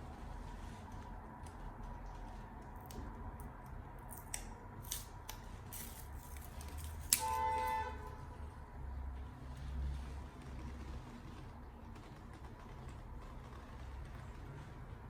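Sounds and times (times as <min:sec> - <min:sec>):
clicks and rustles of handling: 0:00.1 - 0:07.8.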